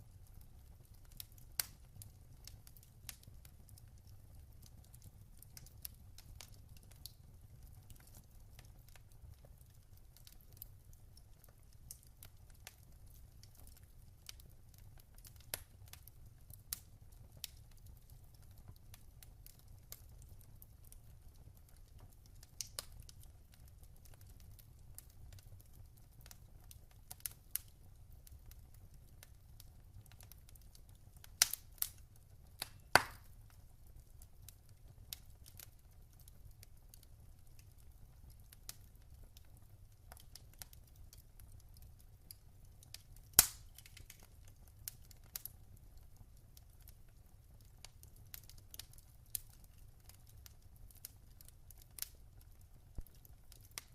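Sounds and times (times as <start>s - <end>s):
wood fire crackling and popping: 0.0s - 53.9s.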